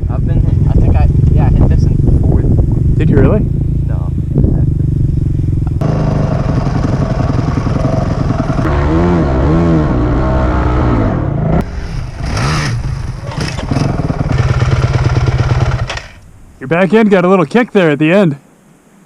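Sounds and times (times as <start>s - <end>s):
dirt bike engine running: 0.0s - 16.2s
dirt bike revving: 2.4s - 16.2s.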